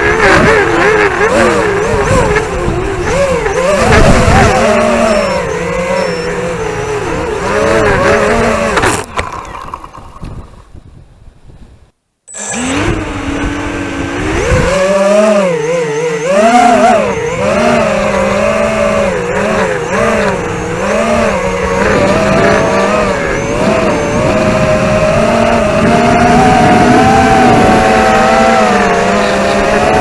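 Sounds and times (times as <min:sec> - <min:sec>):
quadcopter motors whining: 0:00.0 - 0:10.5, 0:12.3 - 0:30.0.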